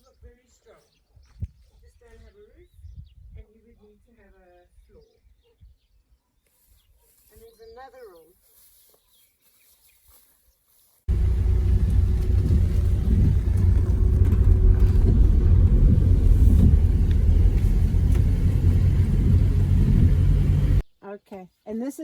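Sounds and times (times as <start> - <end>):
car road and engine rumble: 11.1 - 20.8.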